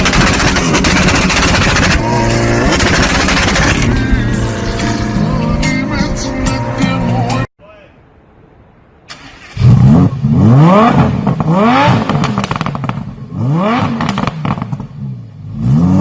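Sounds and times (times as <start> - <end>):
exhaust crackling pops: 0.0 - 4.0, 11.0 - 13.2, 13.9 - 15.0
car exhaust revving: 0.0 - 5.9, 9.4 - 16.0.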